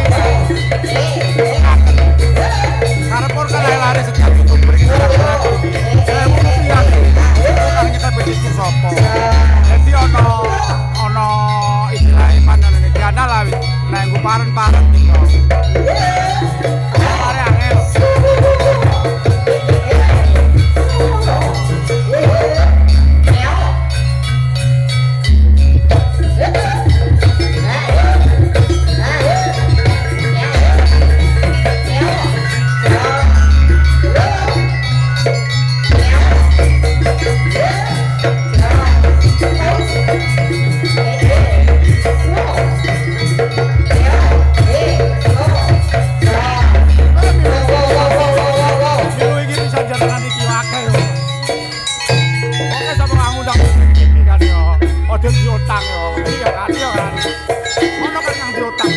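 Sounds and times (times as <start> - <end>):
bronze gong-chimes: 0.0 - 58.9
folk music with drums: 0.0 - 58.9
heavy low bass: 1.6 - 15.7, 53.2 - 56.4.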